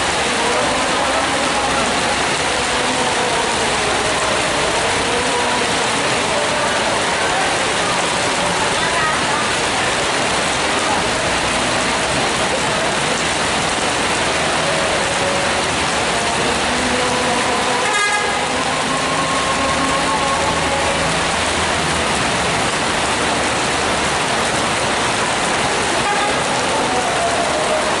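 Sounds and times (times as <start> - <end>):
bus engine: 0.0 - 28.0
heavy rain hissing: 0.0 - 28.0
horn toots: 17.8 - 18.6, 25.9 - 26.6.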